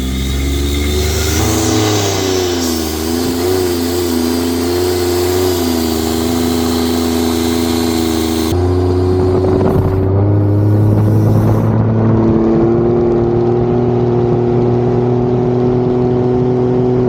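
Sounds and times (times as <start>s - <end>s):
hiss: 0.0s - 11.7s
boat engine running: 0.0s - 15.0s.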